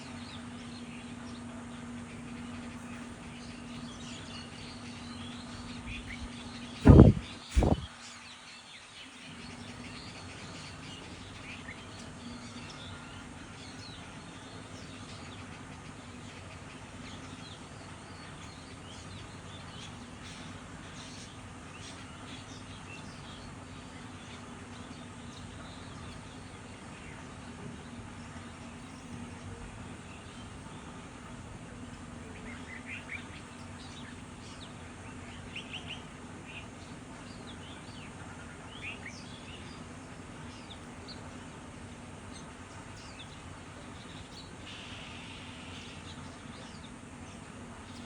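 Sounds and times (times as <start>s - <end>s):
faint low hum: 0.0s - 48.0s
small birds chirping: 0.0s - 48.0s
loud thumps: 6.8s - 7.9s.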